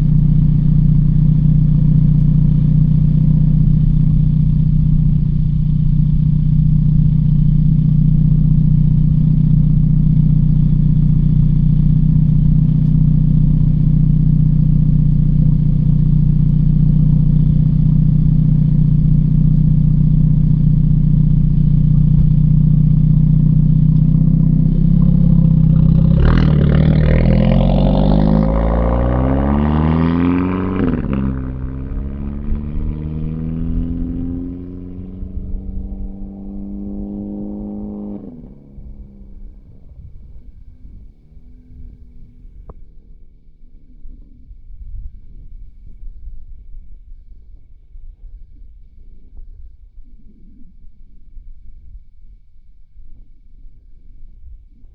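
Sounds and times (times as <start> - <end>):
car engine revving up: 0.0 - 42.7
car engine droning: 0.0 - 42.8.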